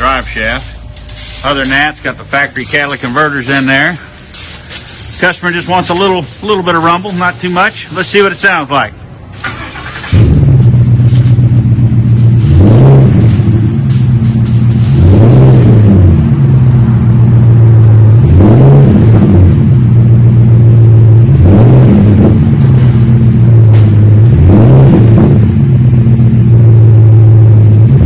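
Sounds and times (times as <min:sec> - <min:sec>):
truck engine idling: 0:00.0 - 0:18.2, 0:22.3 - 0:24.4
engine throttle blips: 0:00.0 - 0:28.0.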